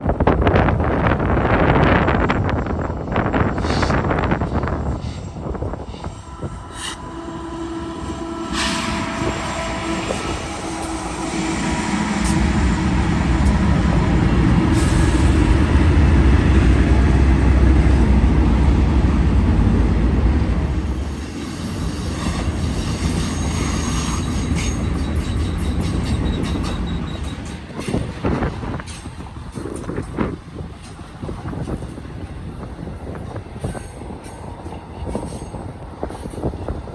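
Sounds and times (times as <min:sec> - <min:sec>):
diesel locomotive engines: 0:00.0 - 0:36.9
rail cars rumbling: 0:00.0 - 0:36.9
wheel squeal: 0:21.5 - 0:28.0.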